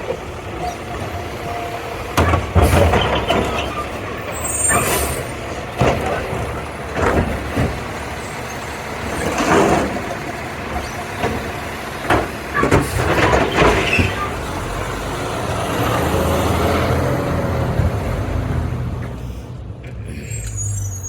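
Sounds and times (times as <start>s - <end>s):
garbage truck engine running: 0.0s - 20.0s.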